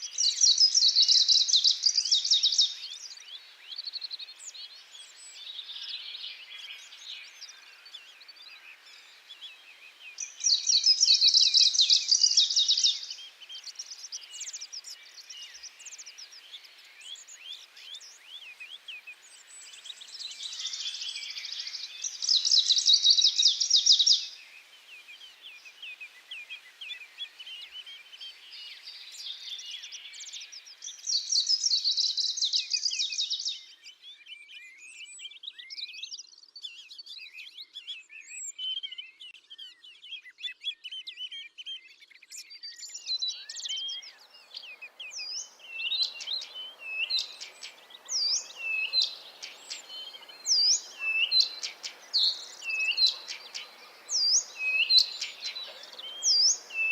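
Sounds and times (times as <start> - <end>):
songbirds chattering: 0.0 - 33.9, 42.3 - 56.9
sharp repeated bird chirps: 43.4 - 56.9.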